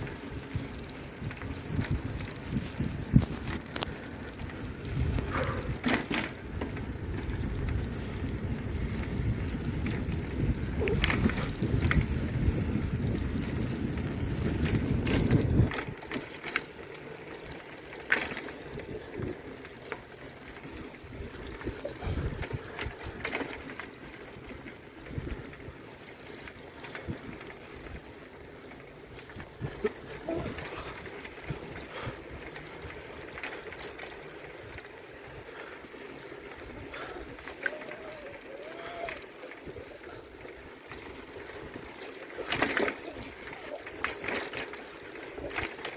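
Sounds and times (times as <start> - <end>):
wind buffeting microphone: 0.0 - 16.2, 20.5 - 28.3, 29.1 - 35.6.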